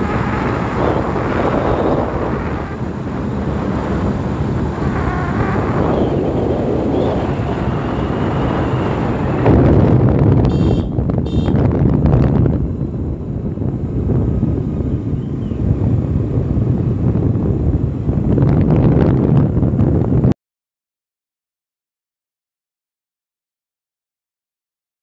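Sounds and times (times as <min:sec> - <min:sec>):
vehicle road and engine rumble: 0:00.0 - 0:20.4
wind buffeting microphone: 0:00.0 - 0:20.4
short high-pitched beeps: 0:10.5 - 0:11.6.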